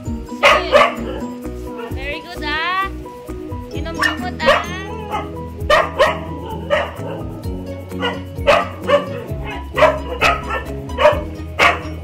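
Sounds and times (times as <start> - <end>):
background music: 0.0 - 12.0
dog barking in sharp yaps: 8.0 - 11.9.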